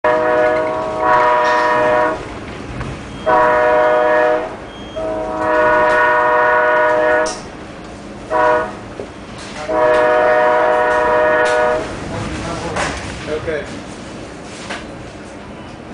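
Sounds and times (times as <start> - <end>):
train air horn blasts: 0.0 - 2.3, 3.2 - 7.5, 8.3 - 8.8, 9.6 - 11.9
low train rumble: 0.0 - 15.9.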